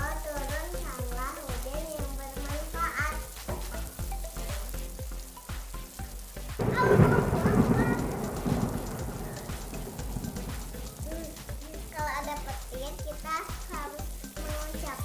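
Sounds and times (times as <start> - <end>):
music: 0.0 - 15.0
rain falling: 0.0 - 15.0
thunder rumble: 6.6 - 12.0.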